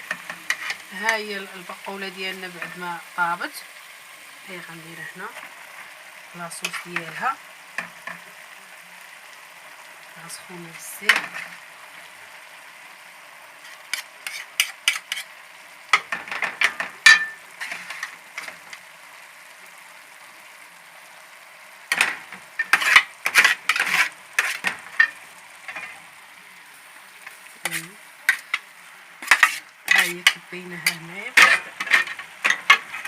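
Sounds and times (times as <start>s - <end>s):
utensil scraping and clinking on pan: 0.0s - 1.3s, 13.6s - 15.3s, 15.9s - 18.8s, 21.9s - 26.0s, 27.6s - 33.0s
hot sauce sizzling in a pan: 0.0s - 33.0s.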